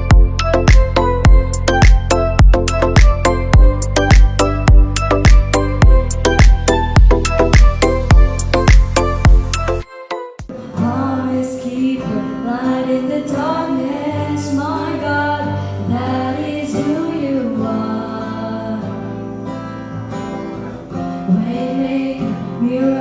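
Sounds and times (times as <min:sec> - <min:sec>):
acoustic guitar: 0:00.0 - 0:23.0
woman singing: 0:10.5 - 0:19.1, 0:21.2 - 0:23.0.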